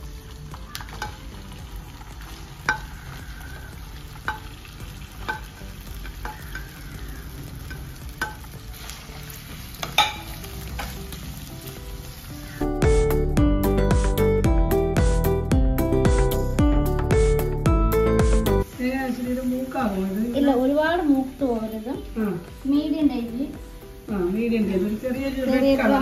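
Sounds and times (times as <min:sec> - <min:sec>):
ginger sizzling in oil: 0:00.0 - 0:13.0, 0:18.5 - 0:26.0
spatula tapping pan: 0:00.5 - 0:01.4, 0:02.6 - 0:09.0, 0:09.8 - 0:11.2.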